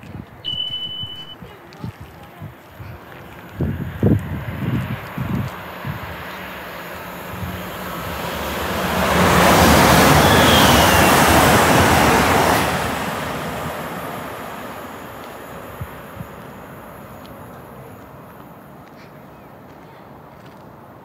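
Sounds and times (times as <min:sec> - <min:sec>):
high falling whine: 0:00.5 - 0:01.4
train passing at speed: 0:03.0 - 0:21.0.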